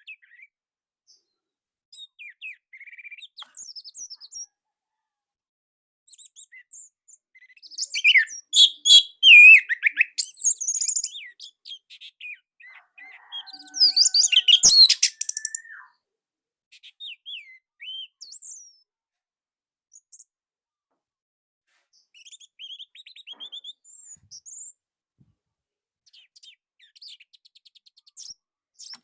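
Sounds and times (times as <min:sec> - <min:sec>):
thrush singing chirps and whistles: 0:07.8 - 0:12.4, 0:13.1 - 0:15.9.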